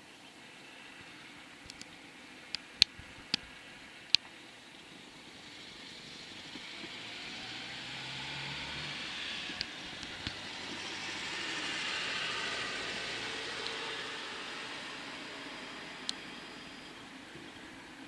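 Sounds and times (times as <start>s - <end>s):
distant vehicle passing: 0.6s - 18.0s
faint clicks: 1.6s - 3.5s.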